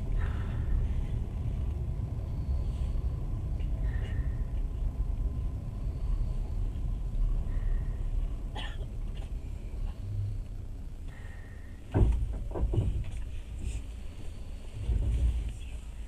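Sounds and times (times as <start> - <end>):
train carriage rumbling: 0.0 - 16.0
knocks and clanks: 11.9 - 13.4.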